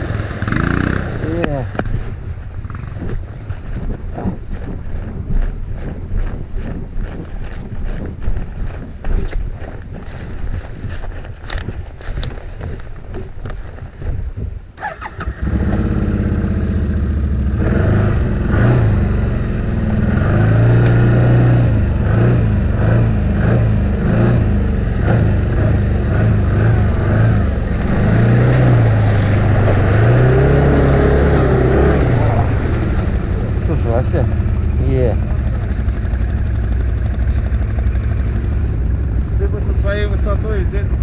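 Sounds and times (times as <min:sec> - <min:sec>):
atv engine revving hard: 0:00.0 - 0:02.0, 0:14.8 - 0:41.0
scuffing noise: 0:01.8 - 0:14.6.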